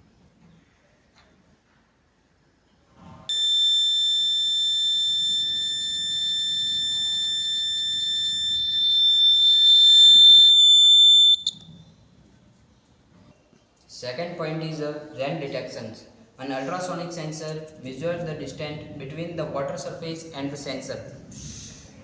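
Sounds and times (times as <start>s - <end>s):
buzzer high-pitched tone: 3.3s - 11.6s.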